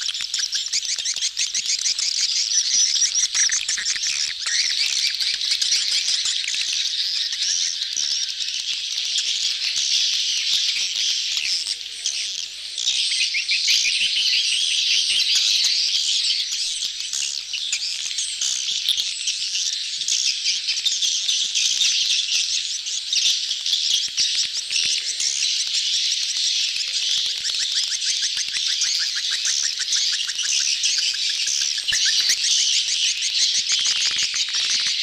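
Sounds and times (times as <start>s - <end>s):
swiftlets twittering: 22.5s - 35.0s.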